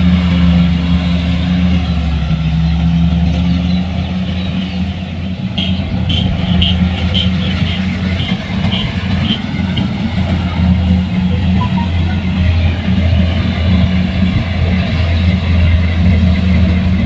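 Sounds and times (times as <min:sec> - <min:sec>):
diesel engine droning: 0:00.0 - 0:17.0
short high beeps: 0:11.5 - 0:12.1.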